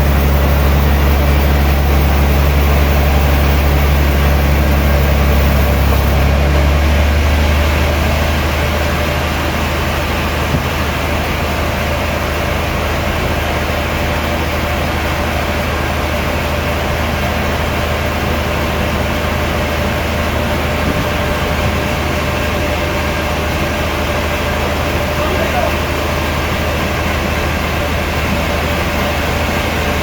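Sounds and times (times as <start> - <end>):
faint steady whine: 0.0 - 6.3
sawmill machinery drone: 0.0 - 30.0.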